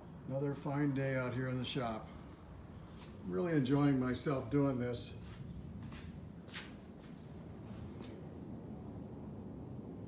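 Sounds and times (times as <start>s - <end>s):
soft brief rustle: 5.3s - 8.2s.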